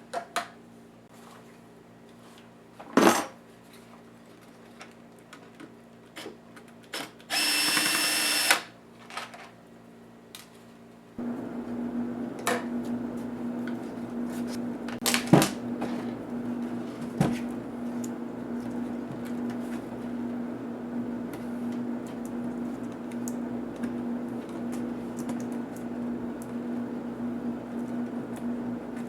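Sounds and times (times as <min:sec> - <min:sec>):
steady hum: 0:11.2 - 0:29.0.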